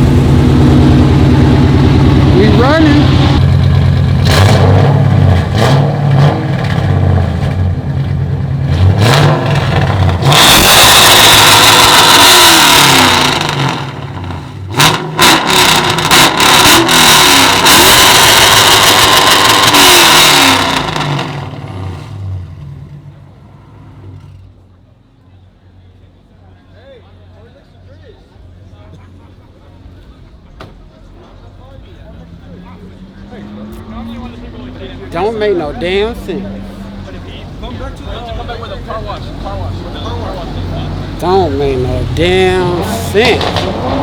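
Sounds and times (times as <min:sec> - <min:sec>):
car engine revving hard: 0:00.0 - 0:22.6, 0:32.9 - 0:44.0
engine exhaust cracks: 0:42.5 - 0:44.0.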